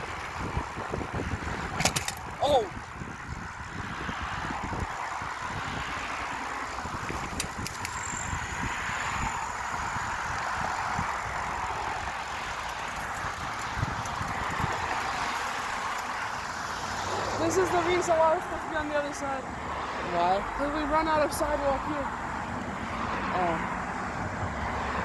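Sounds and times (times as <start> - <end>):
wind buffeting microphone: 0.0 - 19.4
tyres hissing on road: 8.0 - 25.0.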